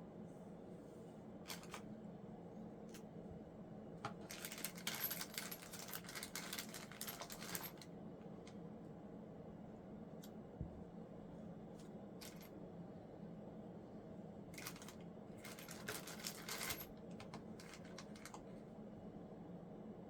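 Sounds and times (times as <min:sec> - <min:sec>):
steady low hum: 0:00.0 - 0:20.0
small hard parts clicking: 0:04.1 - 0:07.8, 0:14.6 - 0:18.4.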